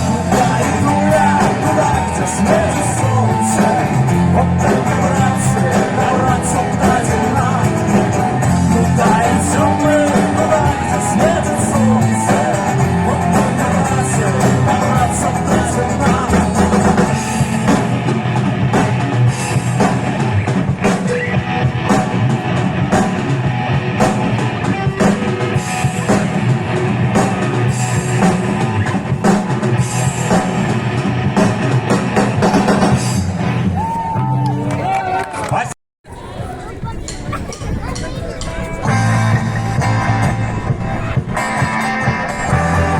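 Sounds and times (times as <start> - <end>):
person singing: 0.0 - 17.9
drum kit: 0.0 - 35.0, 37.0 - 42.9
electric guitar: 0.0 - 35.5, 37.9 - 42.9.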